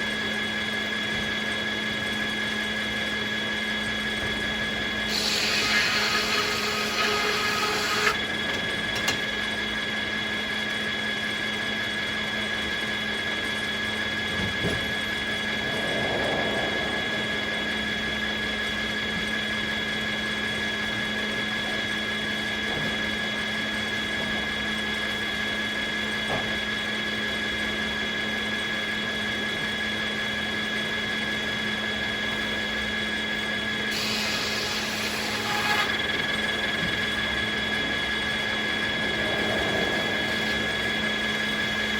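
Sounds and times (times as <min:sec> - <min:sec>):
circular saw blade whining: 0:00.0 - 0:12.4, 0:30.0 - 0:41.9.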